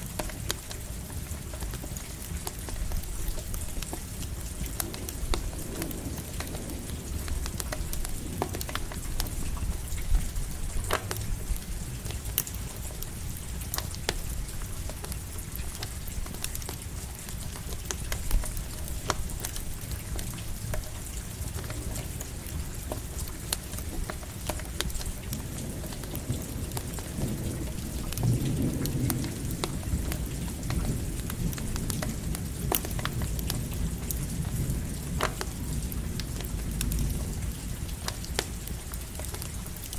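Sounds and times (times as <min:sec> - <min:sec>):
campfire crackling and popping: 0:00.0 - 0:39.9
steady rain: 0:00.0 - 0:39.9
thunder rumble: 0:02.2 - 0:16.7, 0:25.1 - 0:39.6.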